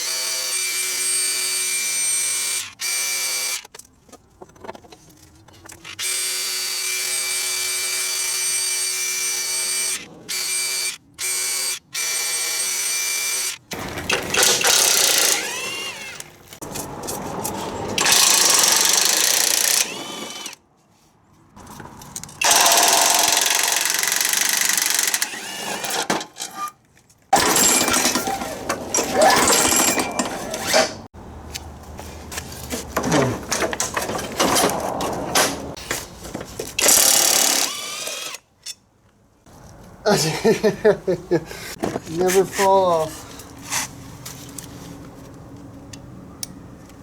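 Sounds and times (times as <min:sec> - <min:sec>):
hand-held power tool running: 0:12.0 - 0:16.3, 0:18.0 - 0:20.6, 0:22.4 - 0:26.0, 0:36.8 - 0:38.4
metal parts clattering: 0:27.4 - 0:31.1, 0:33.0 - 0:36.0.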